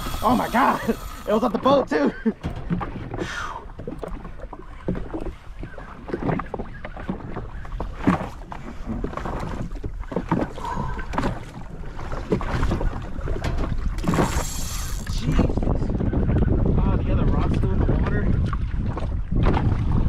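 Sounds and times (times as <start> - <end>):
water sloshing against hull: 0.0 - 20.0
wind buffeting microphone: 0.0 - 20.0.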